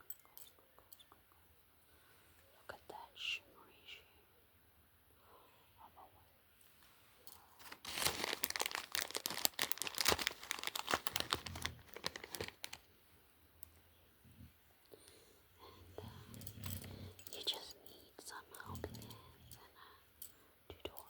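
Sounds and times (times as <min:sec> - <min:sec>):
packaging crinkling and tearing: 0:07.6 - 0:12.9.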